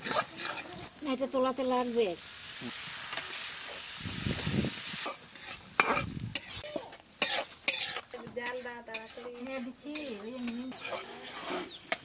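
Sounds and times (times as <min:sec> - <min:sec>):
metal spatula scraping a pan: 0:00.0 - 0:01.5, 0:05.0 - 0:12.0
spice masala sizzling in a pan: 0:00.0 - 0:12.0.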